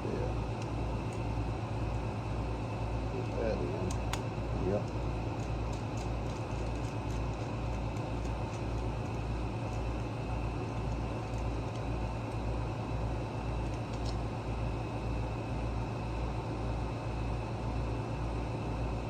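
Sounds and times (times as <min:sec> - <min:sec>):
pulsing mechanical hum: 0:00.0 - 0:19.0
light clicks of small parts: 0:03.2 - 0:12.4, 0:13.6 - 0:14.2.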